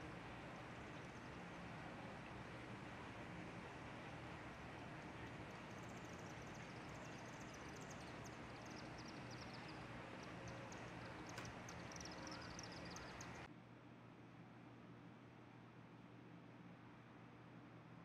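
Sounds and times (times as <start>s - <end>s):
small birds chirping: 0.0s - 1.8s, 3.7s - 13.5s
low background hum: 0.0s - 18.0s.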